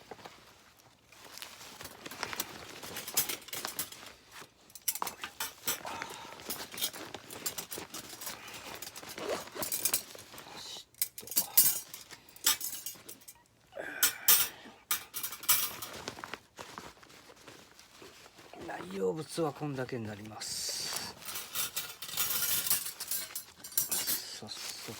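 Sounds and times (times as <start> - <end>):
packaging rustling: 0.0 - 10.6, 15.7 - 24.9
metal parts clinking and rattling: 1.7 - 16.2, 21.1 - 24.5.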